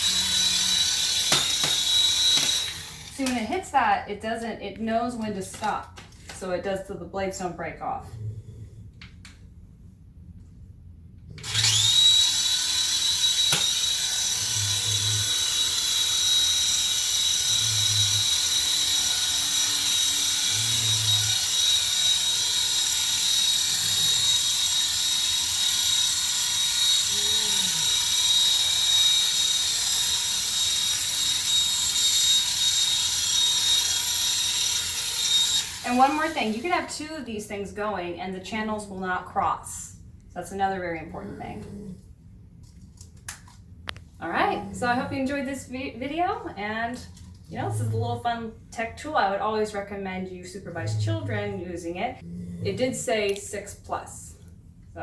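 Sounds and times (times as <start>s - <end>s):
toy helicopter motor whine: 0.0s - 3.4s, 11.4s - 37.0s.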